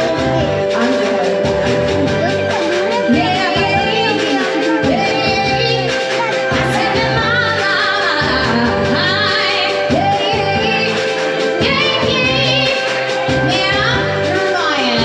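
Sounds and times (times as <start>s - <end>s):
backing track: 0.0s - 15.0s
woman singing: 0.0s - 15.0s.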